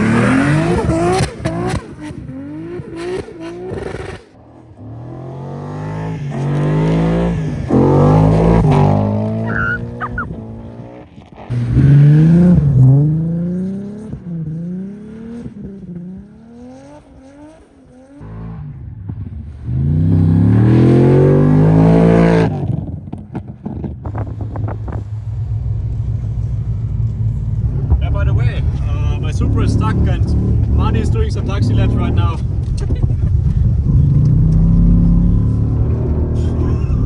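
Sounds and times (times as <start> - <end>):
car engine revving: 0.0 - 37.0
exhaust crackles: 6.1 - 10.8, 23.2 - 37.0.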